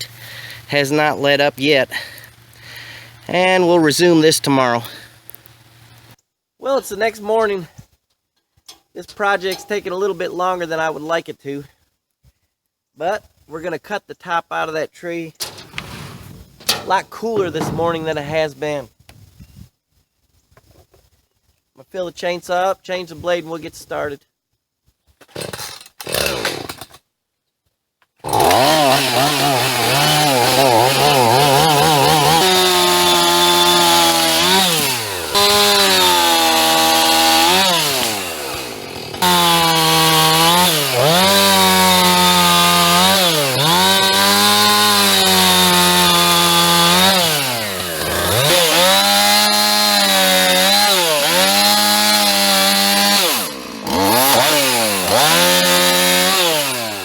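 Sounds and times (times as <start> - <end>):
chainsaw cutting branches: 15.4 - 18.4, 25.2 - 27.0, 28.2 - 57.0.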